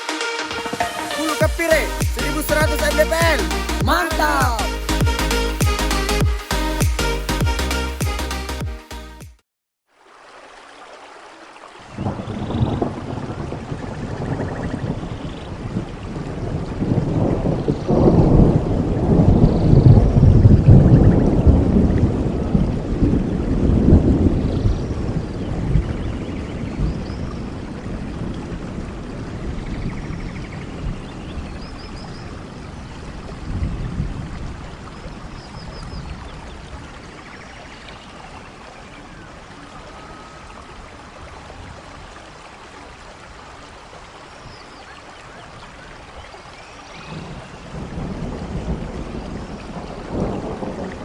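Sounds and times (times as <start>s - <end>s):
wind buffeting microphone: 11.9s - 37.2s, 46.9s - 51.0s.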